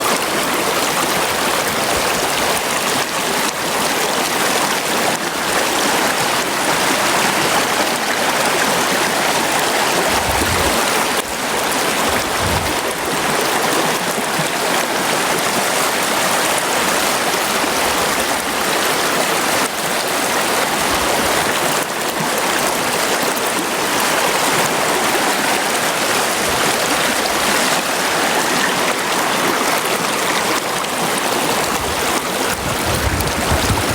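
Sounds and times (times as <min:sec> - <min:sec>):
river water rushing over rocks: 0:00.0 - 0:33.9
brief low thumps: 0:12.1 - 0:13.0.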